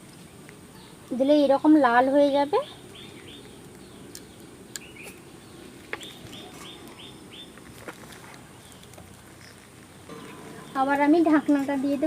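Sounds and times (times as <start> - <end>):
small bird chirping: 0.1 - 7.6.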